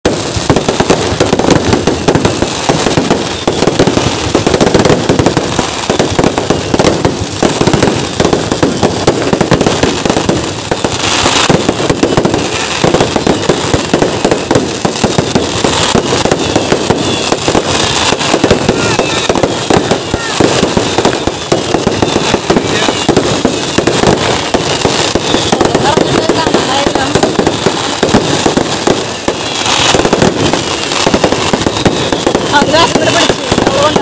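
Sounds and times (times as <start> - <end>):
firecracker bangs: 0.0 - 34.0
sharp crackling: 0.0 - 34.0.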